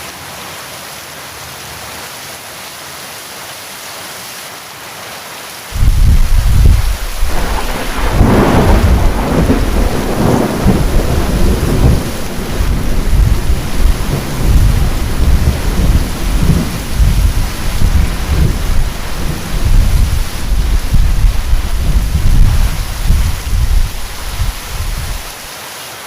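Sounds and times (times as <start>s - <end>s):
heavy rain: 0.0s - 26.0s
thunder clap and rumbling: 5.8s - 25.3s.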